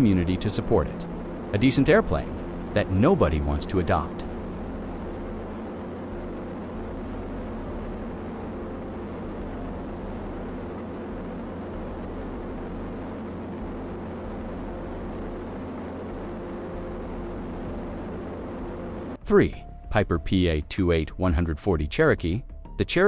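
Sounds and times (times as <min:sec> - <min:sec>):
airplane engine drone: 0:00.0 - 0:19.2.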